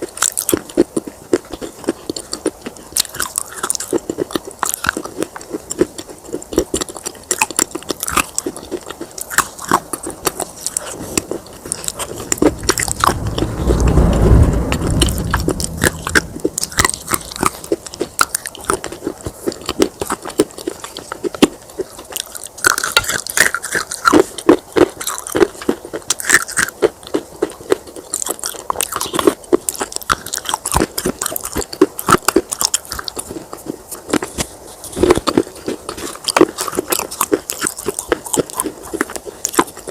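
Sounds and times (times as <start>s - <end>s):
clay pieces crunching when chewed: 0.0s - 12.9s, 16.7s - 39.9s
low rumbling: 11.5s - 18.7s.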